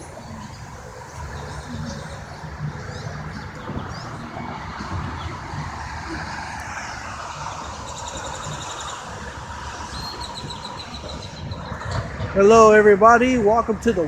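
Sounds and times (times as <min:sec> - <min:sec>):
vehicles running: 0:00.0 - 0:14.0.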